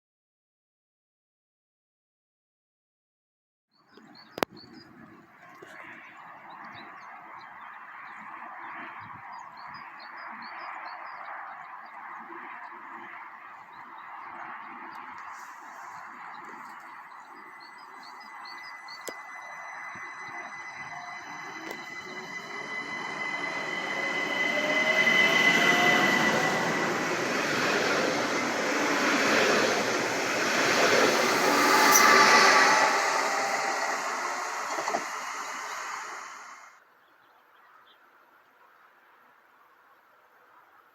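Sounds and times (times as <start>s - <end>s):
birds chirping: 3.8s - 38.0s
train wheels rumbling on rails: 15.3s - 36.7s
steady rushing noise: 15.6s - 36.7s
rising whine: 16.2s - 36.7s
high-pitched wheel squeal: 16.6s - 36.7s.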